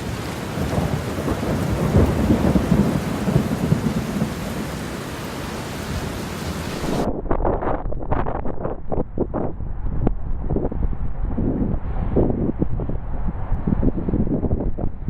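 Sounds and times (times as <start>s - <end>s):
rain hiss: 0.0s - 7.1s
wind buffeting microphone: 5.8s - 15.0s.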